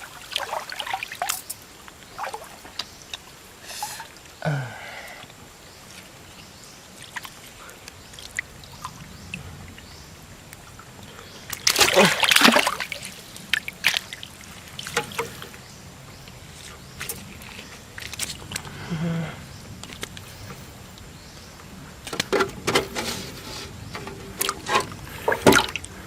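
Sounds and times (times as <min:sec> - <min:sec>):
shallow water splashing: 0:00.0 - 0:02.8, 0:10.8 - 0:15.7, 0:23.2 - 0:26.0
water dripping and trickling: 0:00.0 - 0:04.5, 0:05.1 - 0:18.8, 0:23.7 - 0:26.0.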